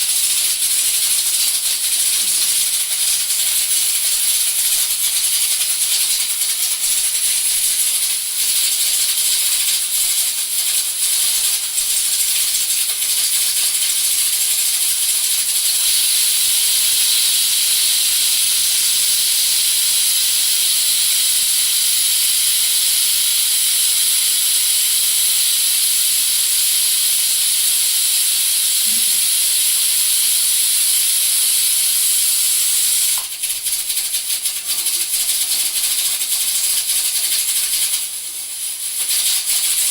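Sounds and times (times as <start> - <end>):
pressure cooker whistle hissing steam: 7.4 - 33.6.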